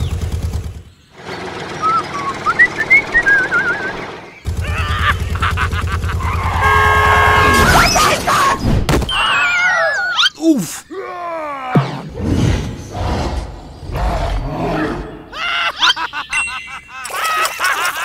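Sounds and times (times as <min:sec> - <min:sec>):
sliding wavering whistle effects: 0:01.8 - 0:04.1
chirpy whistle effects: 0:01.8 - 0:04.4.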